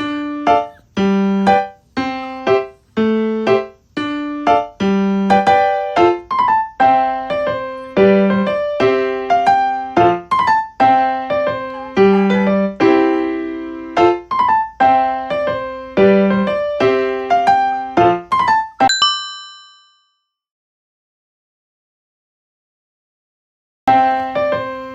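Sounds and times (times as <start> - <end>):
electric piano melody: 0.0 - 19.4.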